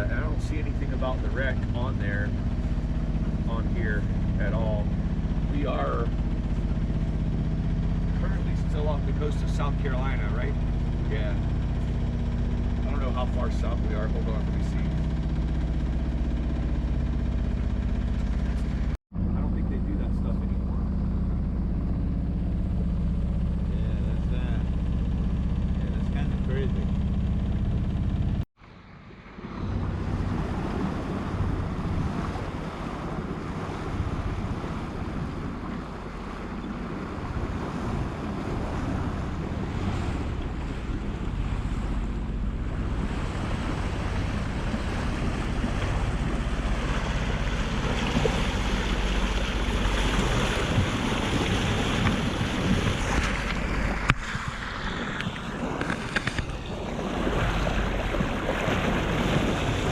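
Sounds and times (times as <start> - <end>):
sea water rushing along hull: 0.0 - 59.9
wind buffeting microphone: 29.4 - 59.9.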